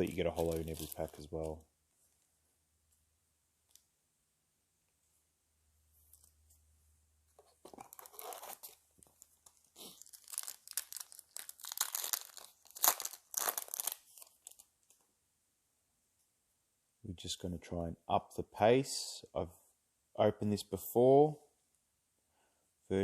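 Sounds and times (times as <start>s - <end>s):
foil wrapper crinkling and tearing: 0.0s - 1.6s, 7.8s - 14.7s.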